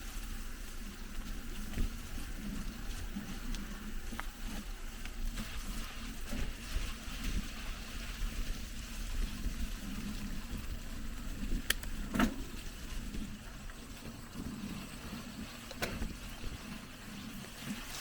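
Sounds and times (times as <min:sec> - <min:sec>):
bicycle tyres rumbling on trail: 0:00.0 - 0:18.0.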